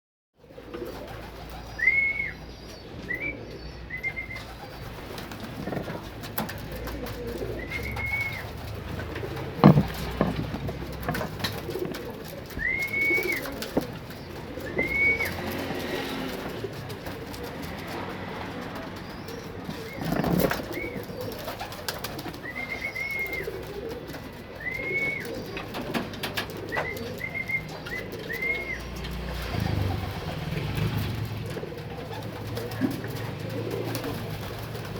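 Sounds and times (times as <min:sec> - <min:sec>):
pigeons cooing: 0:00.4 - 0:34.9
sharp knocks: 0:09.4 - 0:12.0.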